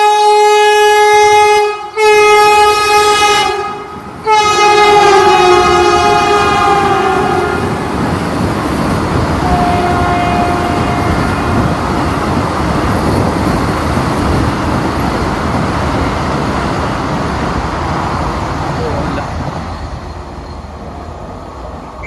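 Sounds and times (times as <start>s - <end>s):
train horn: 0.0s - 7.9s, 9.4s - 11.8s
train wheels rumbling on rails: 0.0s - 22.0s.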